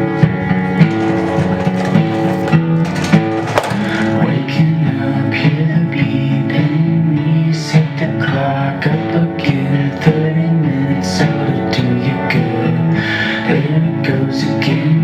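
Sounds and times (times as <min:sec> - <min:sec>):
guitar strumming chords: 0:00.0 - 0:07.3.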